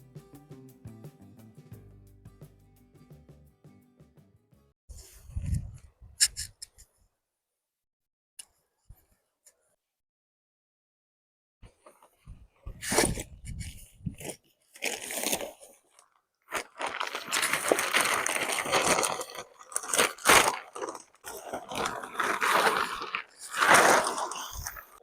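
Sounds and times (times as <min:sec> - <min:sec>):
crunching and rustling: 0:12.9 - 0:25.0.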